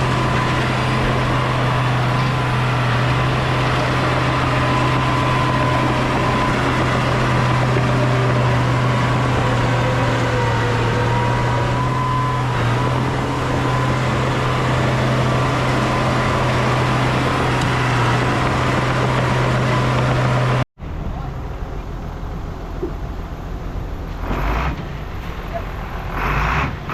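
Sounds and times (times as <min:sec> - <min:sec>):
heavy diesel engine running: 0:00.0 - 0:26.9.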